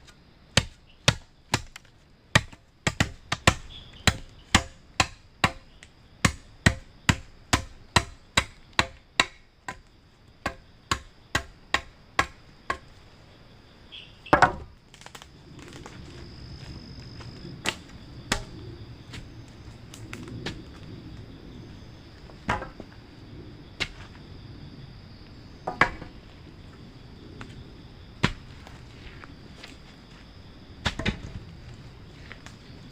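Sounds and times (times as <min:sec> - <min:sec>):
knocks: 0:22.5 - 0:22.8, 0:25.7 - 0:26.1.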